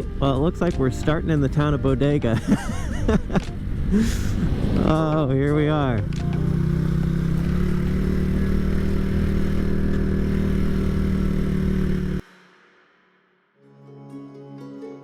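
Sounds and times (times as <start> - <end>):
small motorcycle engine running: 3.9 - 12.2.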